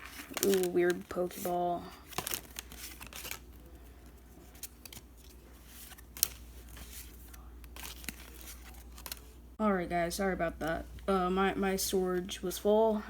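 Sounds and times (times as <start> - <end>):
cards clicking and rustling: 0.0 - 9.4.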